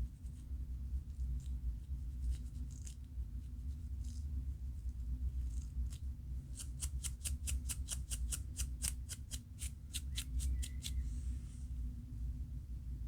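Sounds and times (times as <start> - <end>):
steady low hum: 0.0 - 13.0
scratching scalp: 6.6 - 11.1.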